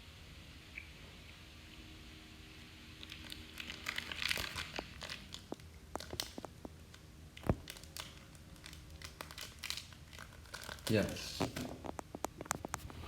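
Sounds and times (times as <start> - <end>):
plastic wrapper crinkling: 3.0 - 13.0.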